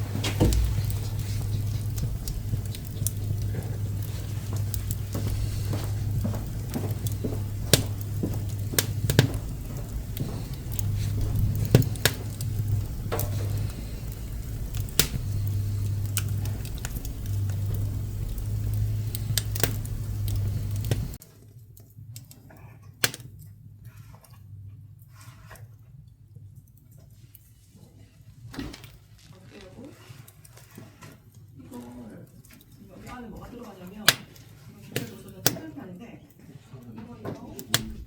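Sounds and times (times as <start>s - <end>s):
low steady hum: 0.0s - 21.2s
wood crackling in a stove: 0.0s - 38.0s.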